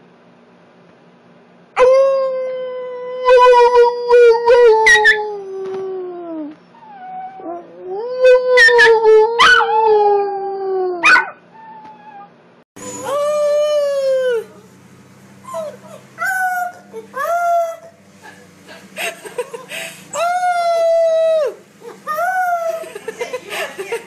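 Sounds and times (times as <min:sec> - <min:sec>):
second puppy howling: 0:01.8 - 0:14.5
puppy howling and yelping: 0:01.8 - 0:14.6, 0:15.4 - 0:17.8, 0:20.1 - 0:23.0.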